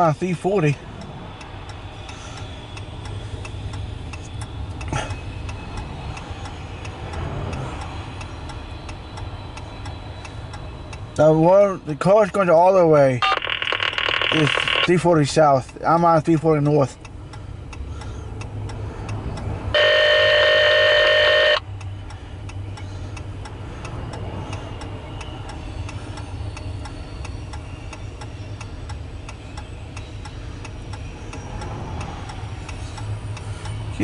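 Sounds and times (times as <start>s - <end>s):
car road and engine rumble: 0.0s - 34.0s
faint regular ticking: 0.0s - 34.0s
loud multi-pitch tone: 12.7s - 15.0s, 19.7s - 21.6s.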